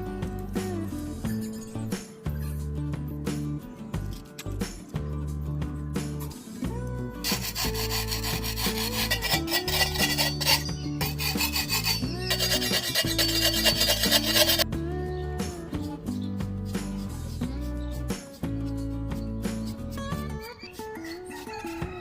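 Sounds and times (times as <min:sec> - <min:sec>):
abrasive rubbing on wood: 0:07.2 - 0:14.6.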